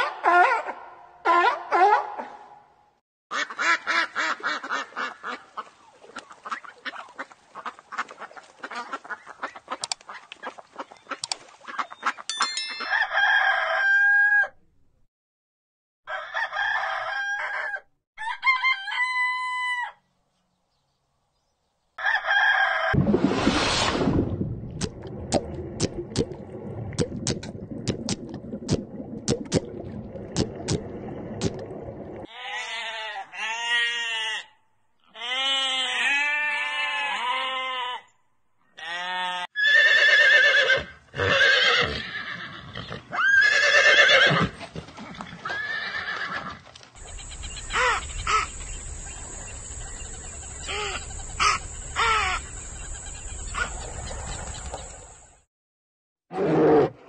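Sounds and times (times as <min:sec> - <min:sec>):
horse neighing: 0:39.5 - 0:44.6, 0:45.4 - 0:46.6.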